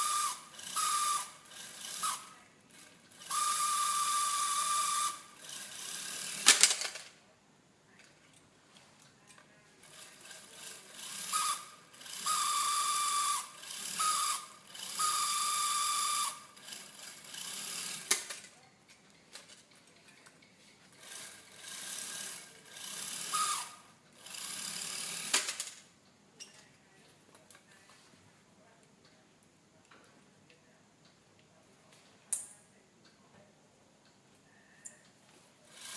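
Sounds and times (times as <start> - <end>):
small electric motor whirring: 0.0 - 6.5, 10.0 - 18.2, 21.0 - 25.7, 35.7 - 35.9.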